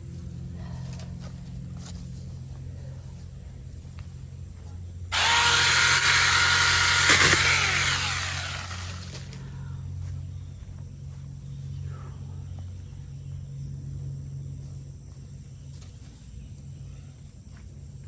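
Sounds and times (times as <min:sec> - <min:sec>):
mini chainsaw whining: 0:05.1 - 0:09.4.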